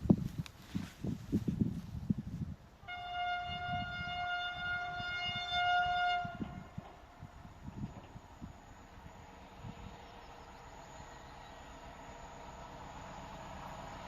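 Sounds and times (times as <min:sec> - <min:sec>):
locomotive horn blast: 0:02.8 - 0:06.8.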